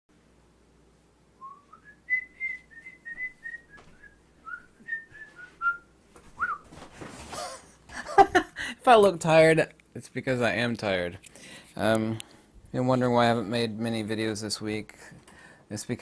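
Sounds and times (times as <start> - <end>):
person whistling a tune: 1.4 - 5.8, 6.4 - 6.6.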